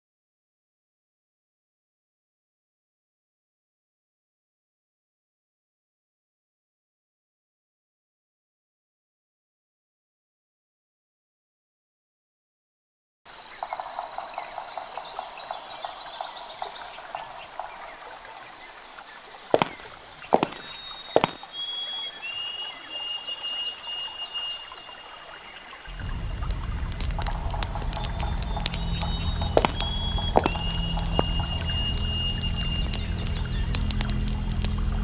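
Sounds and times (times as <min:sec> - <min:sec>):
low rumbling with crackling clicks: 0:25.9 - 0:35.0
sharp clicks: 0:25.9 - 0:35.0
pulsing insect or frog chirps: 0:26.0 - 0:35.0.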